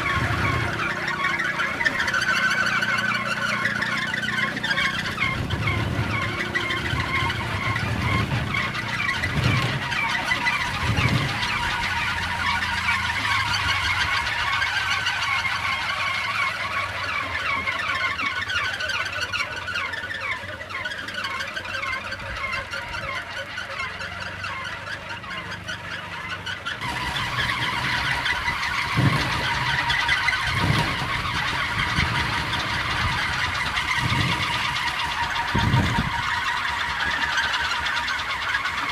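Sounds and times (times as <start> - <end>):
wind propeller whirring: 0.0 - 38.9
wind rumbling on microphone: 5.0 - 14.4, 26.8 - 36.5.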